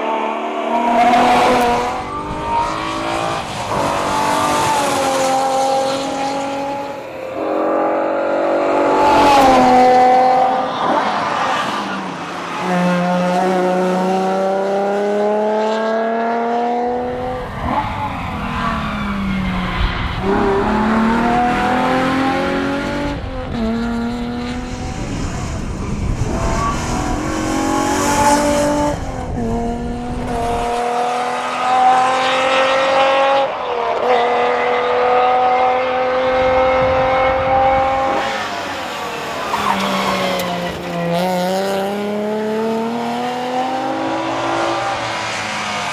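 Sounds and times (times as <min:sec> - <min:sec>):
car engine revving through gears: 0:00.0 - 0:12.0, 0:12.6 - 0:45.9.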